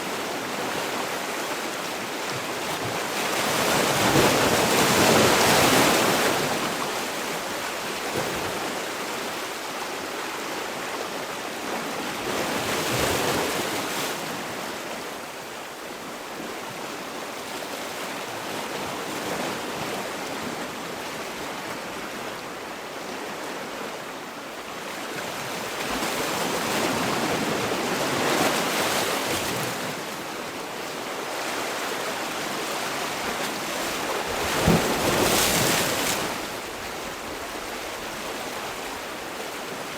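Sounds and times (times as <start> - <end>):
sea waves breaking on shore: 0.0 - 39.9.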